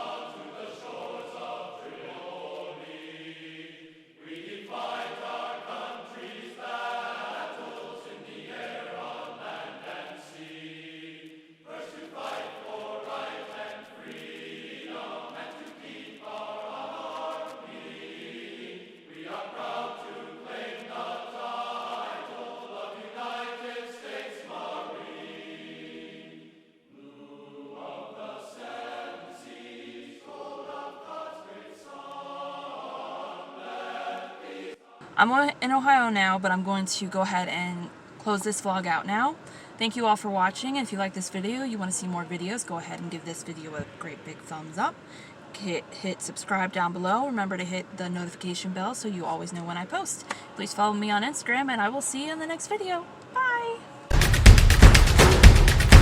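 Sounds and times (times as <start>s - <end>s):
choir singing: 0.0s - 35.1s, 54.0s - 56.0s.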